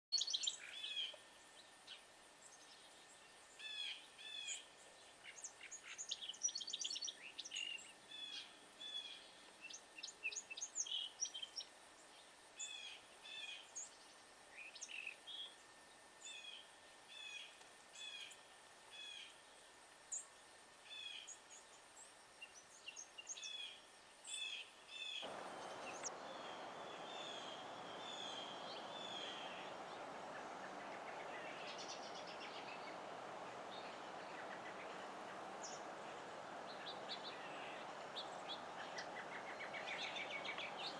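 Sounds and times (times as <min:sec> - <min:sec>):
songbird alarm calls: 0:00.1 - 0:01.1, 0:24.3 - 0:40.9
steady background noise: 0:00.2 - 0:40.9.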